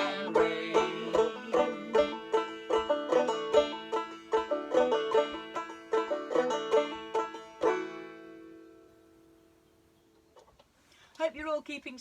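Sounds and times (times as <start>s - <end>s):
plucked string instrument: 0.0s - 8.9s.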